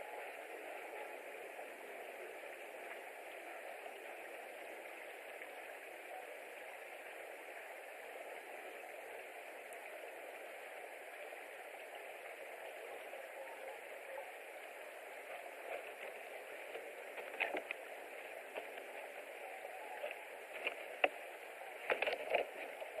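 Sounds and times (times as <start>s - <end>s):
steady outdoor hiss: 0.0s - 23.0s.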